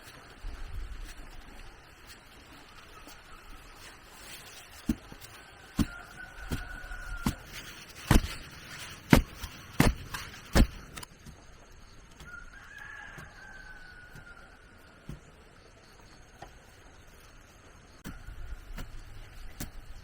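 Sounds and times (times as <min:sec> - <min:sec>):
rooster crowing: 0:05.3 - 0:08.3, 0:12.2 - 0:15.0.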